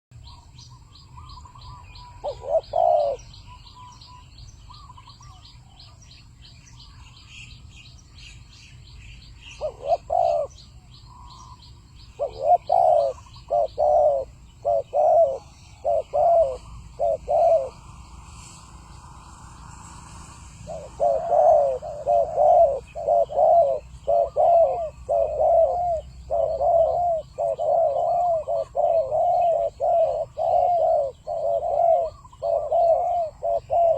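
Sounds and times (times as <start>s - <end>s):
dove cooing: 1.3s - 3.9s, 9.5s - 18.0s, 20.6s - 33.9s.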